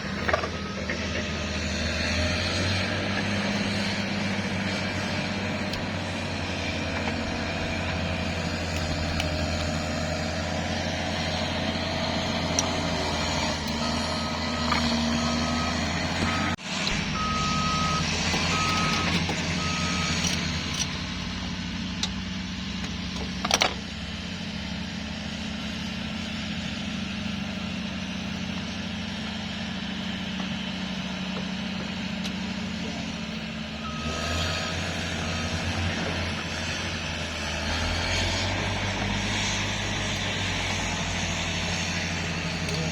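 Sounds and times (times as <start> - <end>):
reversing alarm beeps: 0.0 - 4.1, 12.6 - 20.8, 33.8 - 35.8
heavy vehicle engine running: 0.0 - 42.9.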